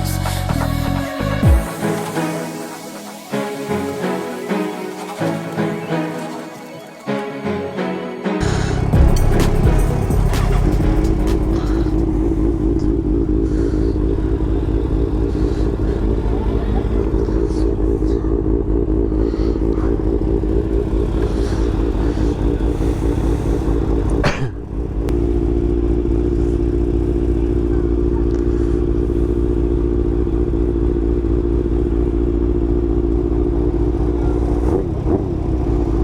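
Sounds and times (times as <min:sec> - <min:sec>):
motorcycle engine running: 0:08.4 - 0:36.0.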